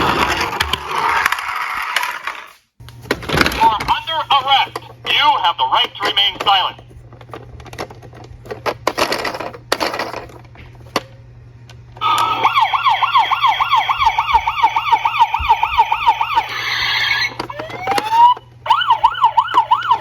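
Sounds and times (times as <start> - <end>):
harsh siren tone: 12.0 - 20.0
police siren yelping: 12.0 - 20.0.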